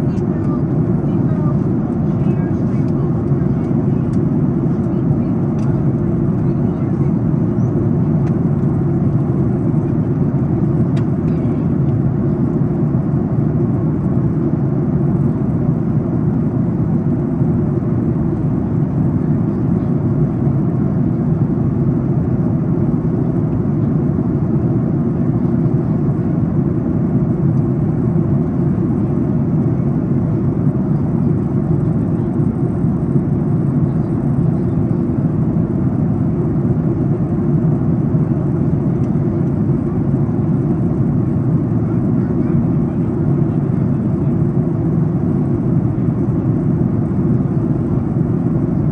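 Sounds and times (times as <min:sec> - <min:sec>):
airliner cabin noise: 0:00.0 - 0:48.9.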